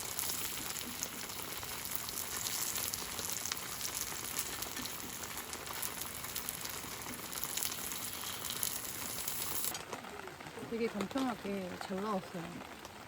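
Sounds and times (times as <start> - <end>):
pancakes sizzling in frying pan: 0.0 - 9.8.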